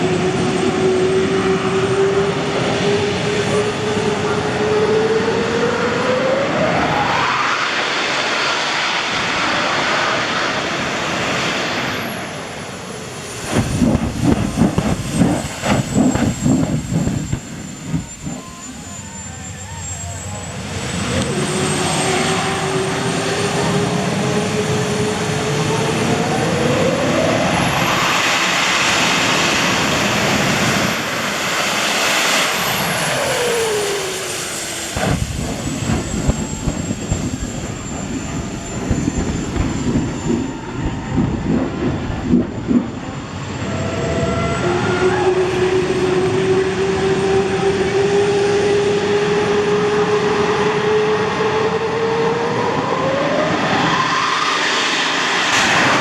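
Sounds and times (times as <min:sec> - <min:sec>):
monster truck engine revving: 0:13.0 - 0:31.4.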